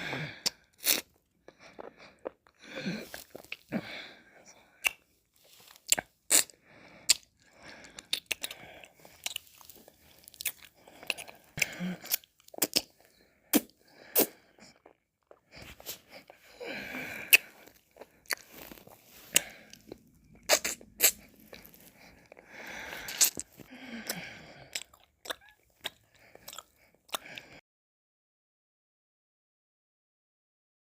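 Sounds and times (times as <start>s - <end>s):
sharp mouth clicks: 4.8s - 5.0s, 23.1s - 23.5s
licking and slurping: 5.6s - 27.5s.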